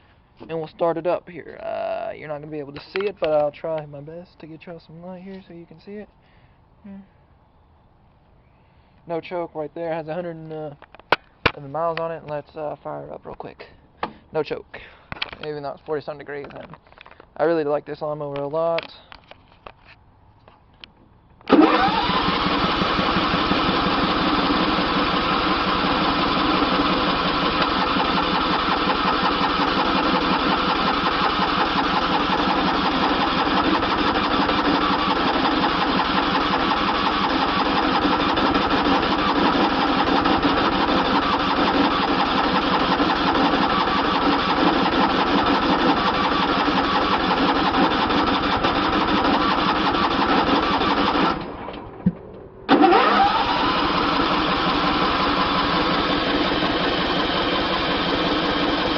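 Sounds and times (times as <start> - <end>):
riding lawn mower engine starting: 21.4 - 58.9.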